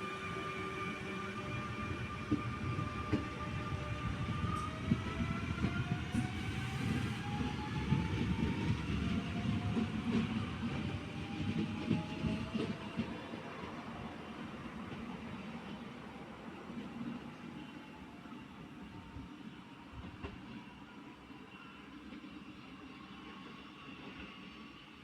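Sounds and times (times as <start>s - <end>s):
train whine rising: 0.0s - 16.8s.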